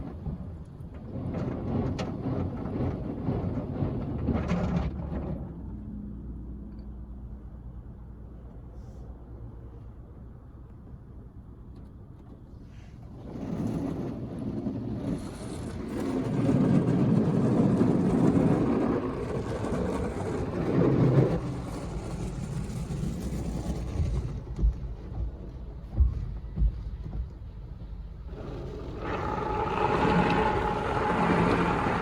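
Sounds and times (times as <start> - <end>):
car wash spraying water: 28.3 - 32.0.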